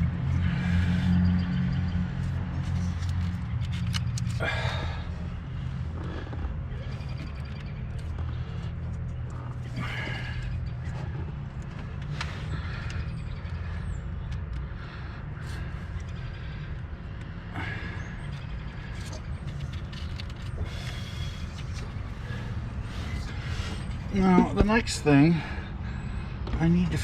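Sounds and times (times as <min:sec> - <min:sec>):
steady low hum: 0:00.0 - 0:27.0
hands and tools clicking on connectors: 0:02.6 - 0:04.4.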